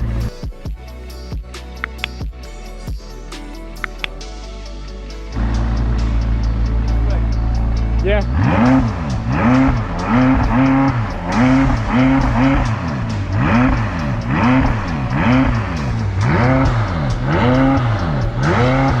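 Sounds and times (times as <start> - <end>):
engine revving in throttle blips: 0.0 - 0.8, 5.3 - 19.0.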